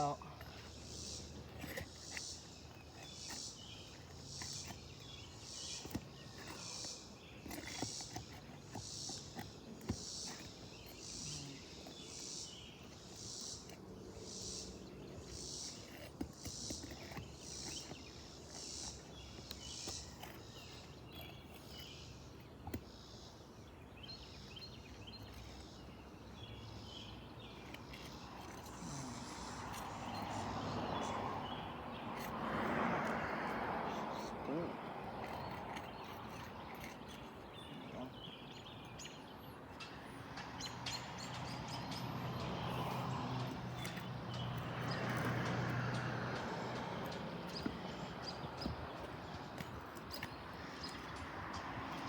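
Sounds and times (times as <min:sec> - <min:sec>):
insect chirping: 0:00.0 - 0:22.3.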